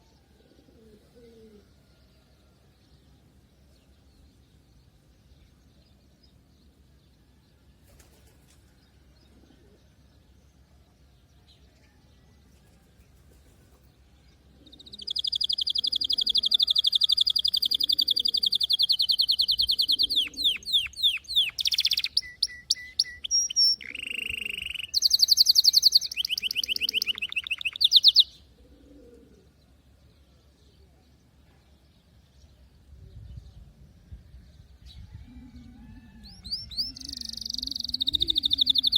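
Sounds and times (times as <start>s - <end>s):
canary singing trills: 14.5s - 28.5s, 35.0s - 38.9s.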